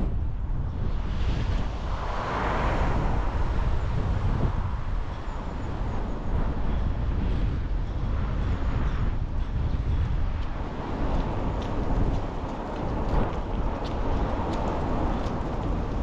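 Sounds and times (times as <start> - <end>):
road and engine rumble: 0.0 - 16.0
wind noise: 0.0 - 16.0.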